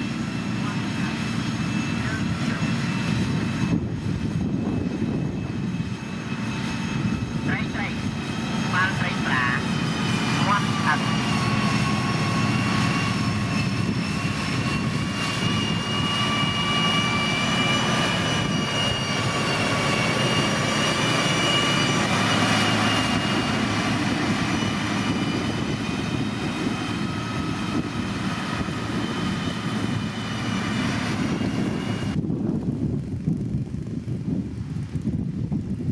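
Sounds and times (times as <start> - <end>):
deep diesel engine hum: 7.1 - 32.2.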